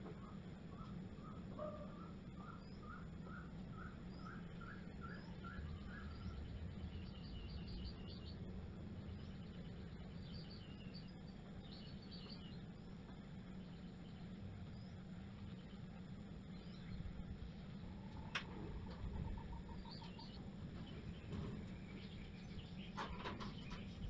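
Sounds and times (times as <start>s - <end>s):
low hum: 0.0s - 24.0s
birds chirping quickly: 0.2s - 24.0s.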